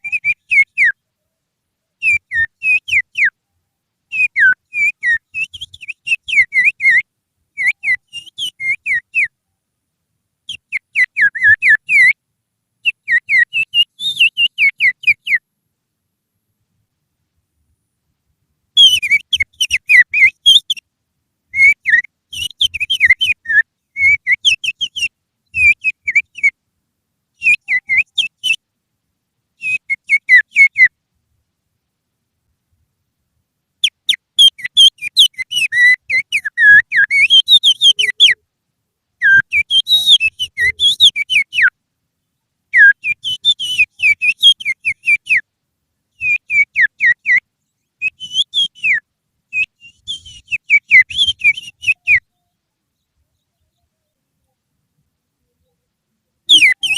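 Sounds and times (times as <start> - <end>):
finger whistling birdsong: 0.0 - 1.0, 2.0 - 3.4, 4.1 - 9.3, 10.5 - 12.2, 12.8 - 15.4, 18.8 - 20.8, 21.6 - 26.6, 27.4 - 28.6, 29.6 - 30.9, 33.8 - 38.4, 39.2 - 41.7, 42.8 - 45.4, 46.2 - 47.4, 48.0 - 54.2, 56.5 - 56.9.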